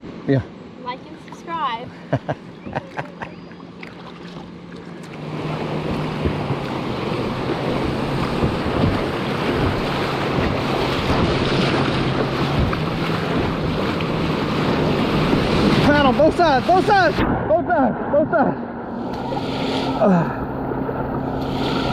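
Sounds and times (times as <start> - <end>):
rushing river water: 2.9 - 17.2, 18.8 - 21.9
wind buffeting microphone: 5.2 - 21.9.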